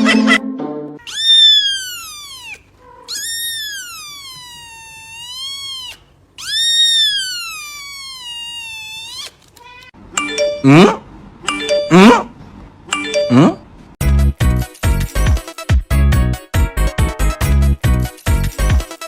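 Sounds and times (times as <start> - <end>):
kitten meowing: 1.0 - 9.9.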